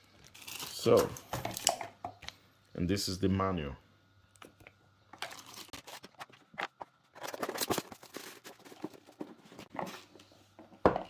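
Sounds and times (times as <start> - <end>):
packaging rustling: 5.2 - 9.8
object set down with a knock: 10.6 - 11.0.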